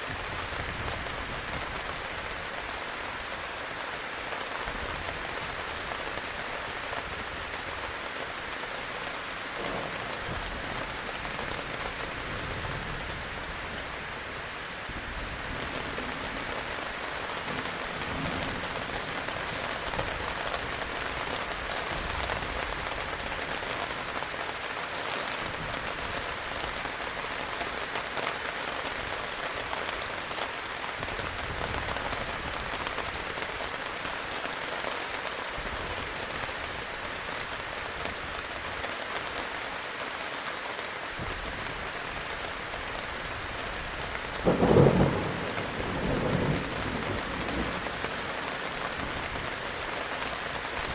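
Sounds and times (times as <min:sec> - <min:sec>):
heavy rain falling: 0:00.0 - 0:50.9
loud thunderclap: 0:44.4 - 0:48.0.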